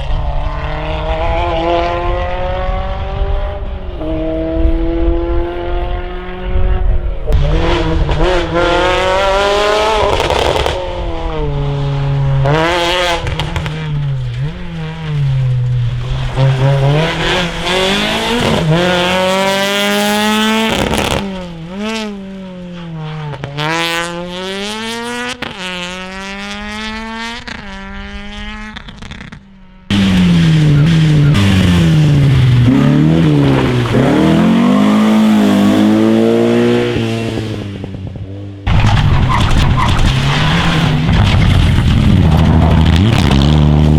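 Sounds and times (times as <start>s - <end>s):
rally car engines revving: 0.0s - 43.9s
sharp cracks: 28.9s - 35.3s, 38.7s - 43.9s
tyre squeal: 32.7s - 35.9s, 38.7s - 41.0s.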